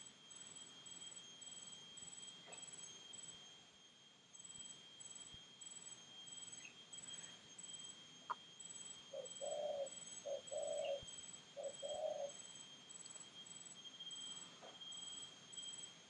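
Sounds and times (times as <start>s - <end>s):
bird cooing: 9.1s - 12.4s.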